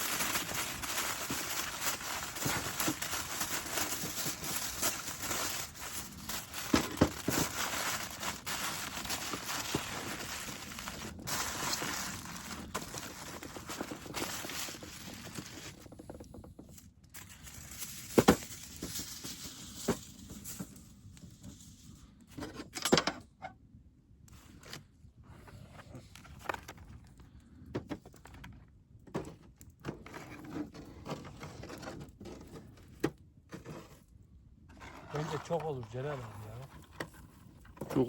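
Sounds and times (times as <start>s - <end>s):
objects being handled: 0.0s - 20.8s, 34.7s - 38.0s.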